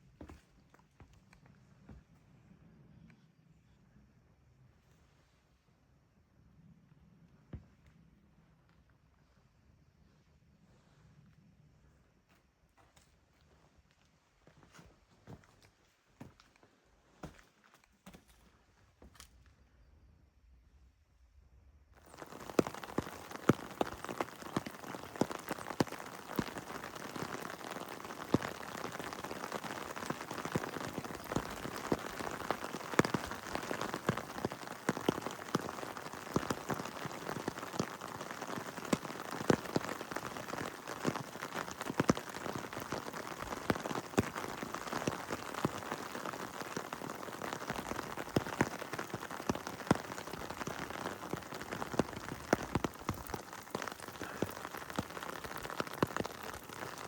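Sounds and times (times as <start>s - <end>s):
heavy rain falling: 22.0s - 57.0s
sharp raindrop hits: 22.0s - 57.0s.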